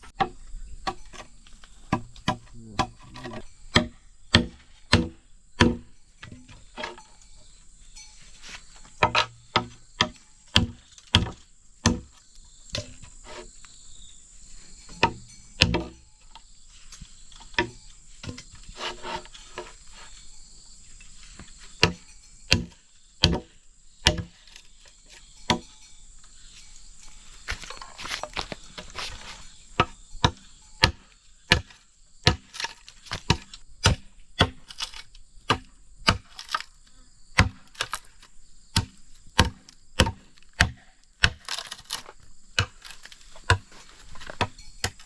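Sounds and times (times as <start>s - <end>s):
insects droning: 0.0s - 45.0s
tool knocks striking wood: 1.9s - 6.9s, 9.0s - 13.0s, 15.0s - 16.0s, 21.8s - 24.3s, 37.4s - 37.8s, 38.8s - 41.6s.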